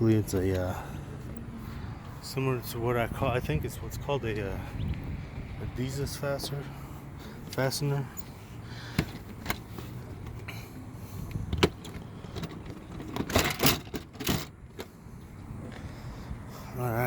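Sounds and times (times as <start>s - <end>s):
clattering knocks and rattles: 11.5s - 15.0s.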